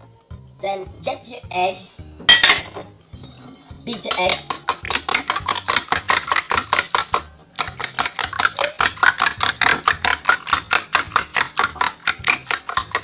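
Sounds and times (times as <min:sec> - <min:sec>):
whisk clicking against bowl: 0:03.9 - 0:13.0.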